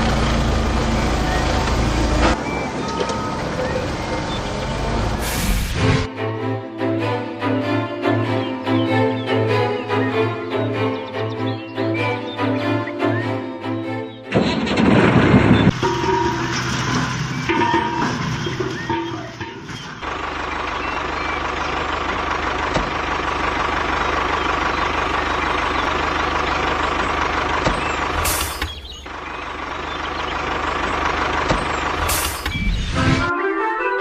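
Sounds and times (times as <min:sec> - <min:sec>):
short sharp hisses: 0:05.2 - 0:05.8.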